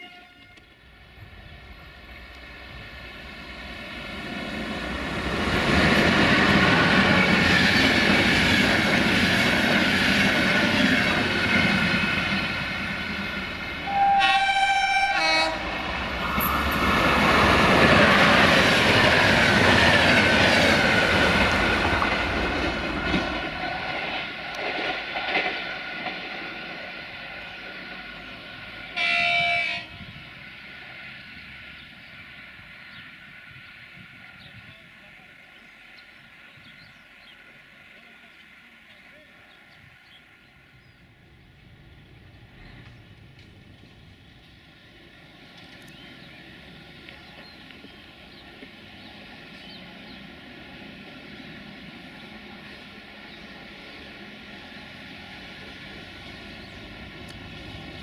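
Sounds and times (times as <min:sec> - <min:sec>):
train horn blast: 0:00.0 - 0:00.8, 0:13.8 - 0:15.9, 0:28.9 - 0:30.2
passenger train passing: 0:00.0 - 0:58.0.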